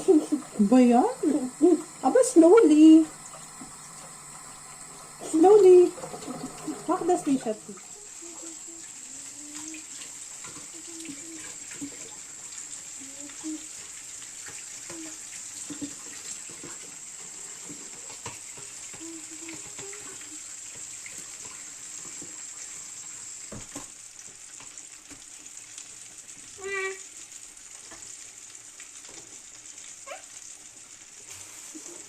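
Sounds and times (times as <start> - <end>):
tap water running into sink: 0.0 - 25.8.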